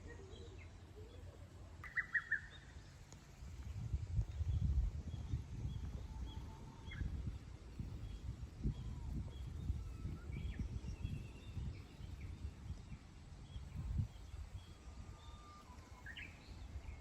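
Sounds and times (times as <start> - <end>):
birds chirping and whistling: 8.0 - 12.4.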